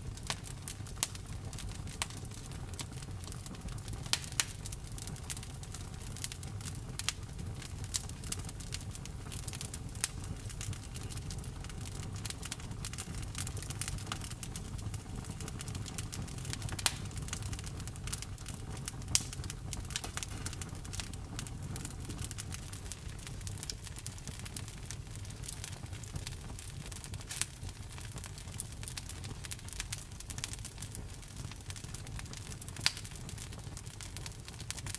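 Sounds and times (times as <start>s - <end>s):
campfire crackling and popping: 0.0s - 34.9s.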